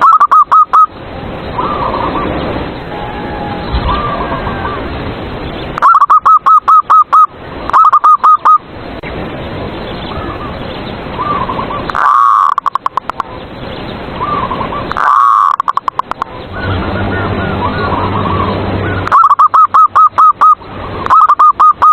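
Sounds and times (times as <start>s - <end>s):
dove trilling call: 0.0s - 8.6s, 9.8s - 21.9s
dove cooing: 3.0s - 4.9s, 17.4s - 21.9s.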